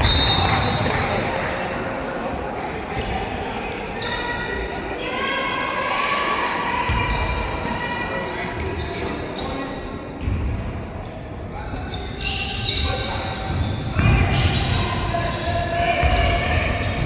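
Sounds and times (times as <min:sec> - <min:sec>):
basketball bouncing on court: 0:00.0 - 0:01.2, 0:13.4 - 0:17.0.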